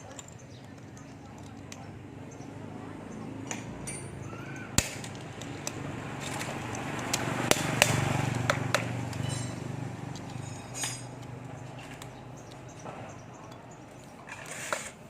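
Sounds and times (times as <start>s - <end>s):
metal tools knocking and clinking: 0.0s - 2.0s, 3.4s - 7.9s, 9.1s - 14.4s.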